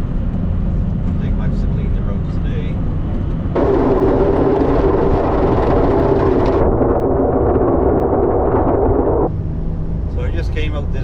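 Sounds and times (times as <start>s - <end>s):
truck engine rumbling: 0.0s - 11.0s
loud rushing noise: 3.6s - 9.3s.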